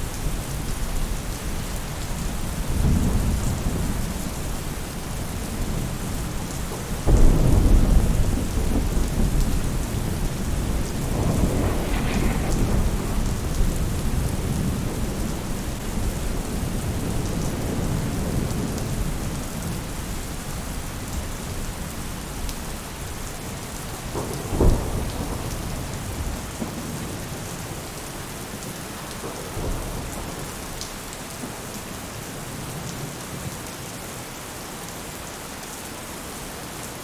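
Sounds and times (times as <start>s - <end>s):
rain on a roof: 0.0s - 37.0s
thunder rolling: 6.8s - 19.2s, 23.8s - 28.0s.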